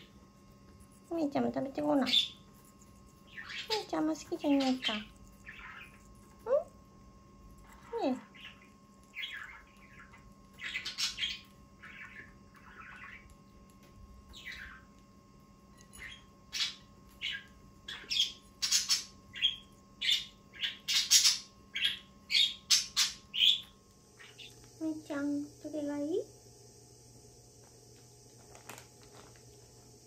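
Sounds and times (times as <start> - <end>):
parakeets chirping and squawking: 1.9 - 2.4, 3.2 - 6.7, 7.7 - 13.5, 14.3 - 14.9, 15.8 - 24.6.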